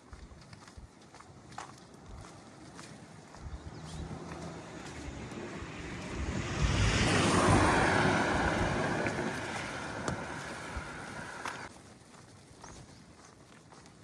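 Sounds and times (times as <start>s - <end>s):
vehicle driving past on wet road: 3.7s - 11.7s.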